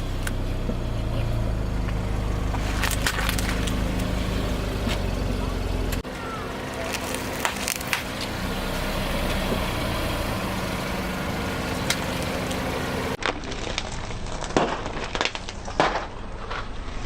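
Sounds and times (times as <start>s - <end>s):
car engine running: 0.0s - 13.2s
sharp cracks: 1.8s - 4.2s, 11.8s - 16.7s.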